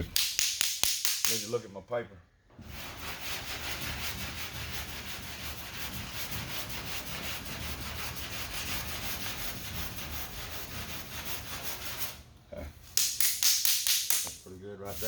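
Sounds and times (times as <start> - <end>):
sandpaper scraping back and forth: 2.6 - 12.2, 14.2 - 15.0.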